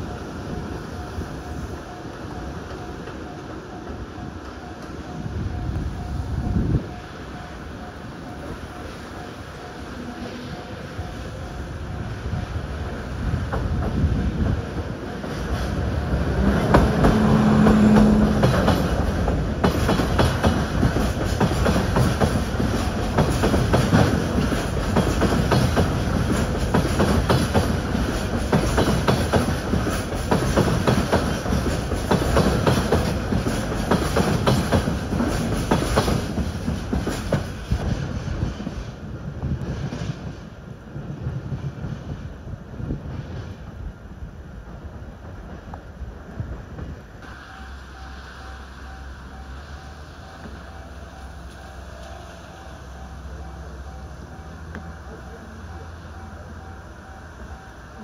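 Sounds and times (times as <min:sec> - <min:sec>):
freight train rolling slowly: 0:00.0 - 0:58.0
wheels clicking over rail joints: 0:00.0 - 0:58.0
low steady tone: 0:47.2 - 0:58.0.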